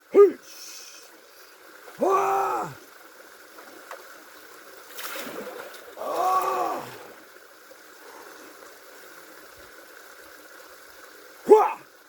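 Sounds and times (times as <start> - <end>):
water flowing: 0.0 - 12.0
splashing: 4.8 - 7.4.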